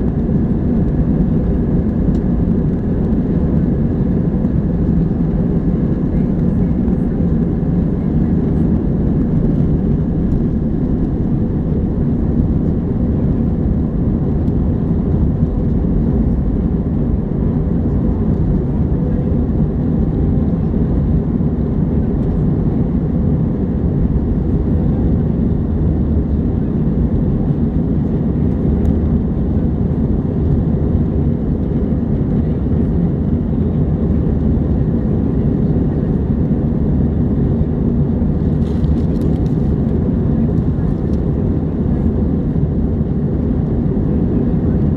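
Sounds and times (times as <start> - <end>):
jet engine cabin roar: 0.0 - 44.9.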